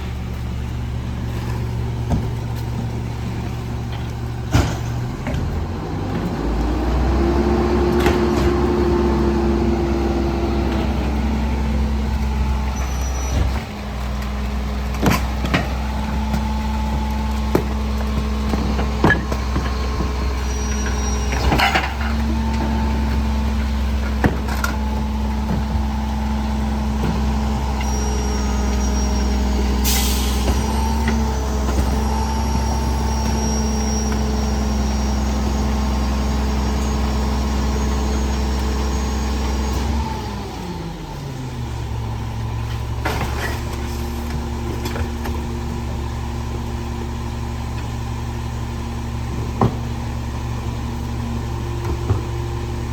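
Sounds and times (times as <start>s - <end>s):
diesel truck engine running: 0.0s - 52.9s
knocks and clanks: 14.9s - 26.1s
short air hiss: 29.8s - 30.5s.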